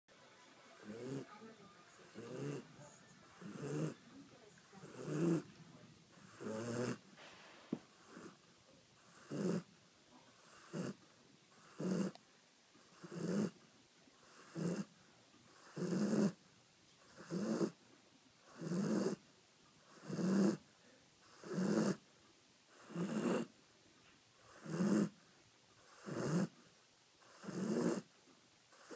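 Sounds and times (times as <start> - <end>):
dog snoring loudly: 0.8 - 1.3, 2.0 - 4.0, 4.7 - 5.5, 6.1 - 7.0, 7.9 - 8.4, 9.0 - 9.7, 10.4 - 12.2, 12.9 - 13.6, 14.2 - 14.9, 15.5 - 16.4, 17.1 - 17.8, 18.4 - 19.2, 19.9 - 20.6, 21.2 - 22.0, 22.7 - 23.5, 24.4 - 25.2, 25.8 - 26.6, 27.2 - 28.1.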